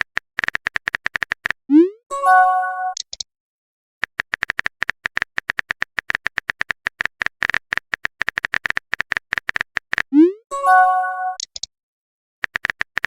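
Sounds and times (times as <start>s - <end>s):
typing clicks: 0.0s - 1.6s, 2.9s - 3.3s, 4.0s - 10.1s, 11.3s - 11.7s, 12.4s - 13.0s.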